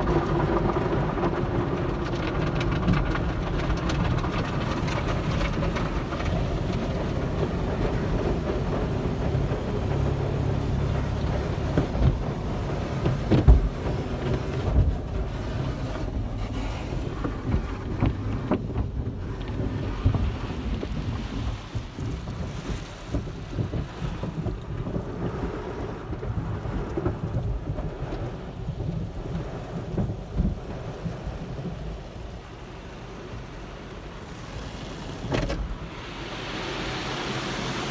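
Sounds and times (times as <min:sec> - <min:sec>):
car wash spraying water: 0:00.0 - 0:23.7, 0:32.0 - 0:37.9.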